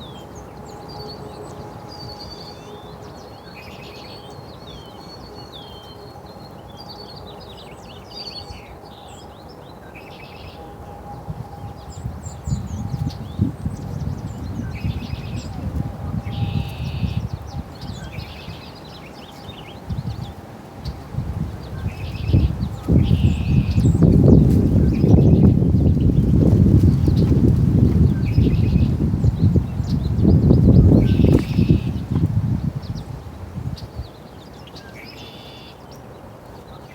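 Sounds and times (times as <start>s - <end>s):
small birds chirping: 11.6s - 36.9s.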